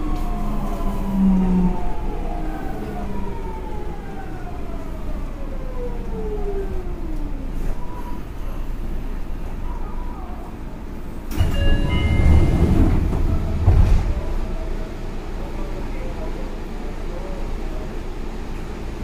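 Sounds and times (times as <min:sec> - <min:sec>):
electric train inverter whine: 0:00.0 - 0:19.0
train wheels rumbling: 0:10.6 - 0:19.0.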